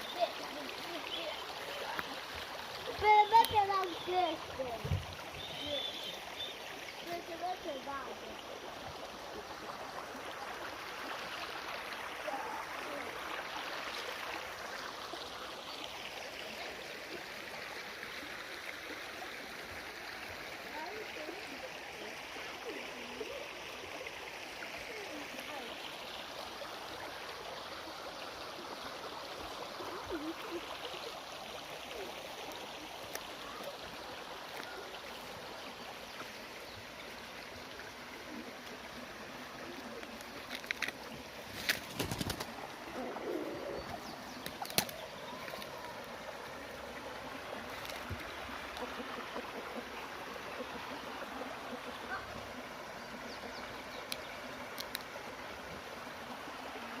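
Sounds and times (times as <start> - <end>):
running water rushing: 0.0 - 57.0
birds calling: 2.9 - 7.2, 39.9 - 46.0.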